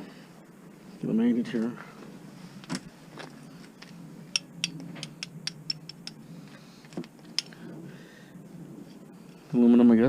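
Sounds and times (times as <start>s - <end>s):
light metal clicks and taps: 4.3s - 6.2s, 7.0s - 7.6s.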